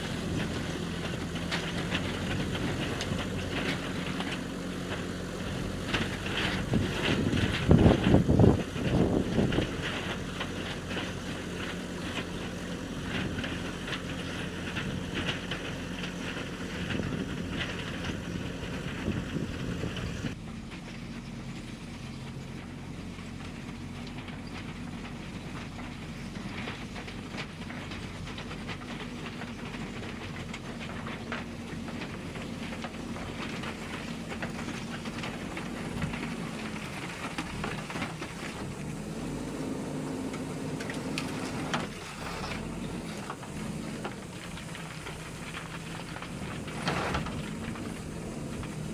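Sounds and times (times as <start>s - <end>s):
backhoe diesel engine running: 0.0s - 48.9s.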